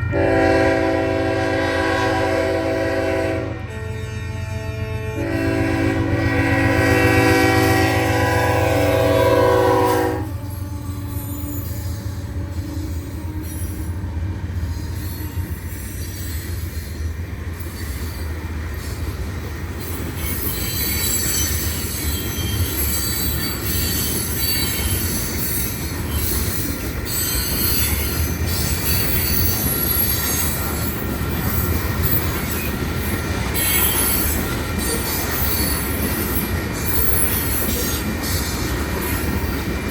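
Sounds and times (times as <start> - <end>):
locomotive air horn: 0.0 - 15.4
train wheels rumbling on rails: 0.0 - 39.9
wheels squealing against rails: 5.2 - 39.9.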